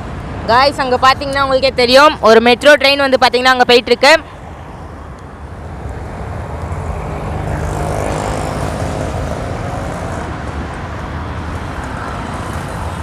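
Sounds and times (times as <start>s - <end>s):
road traffic rumble: 0.0s - 13.0s
vehicle passing close: 4.3s - 13.0s.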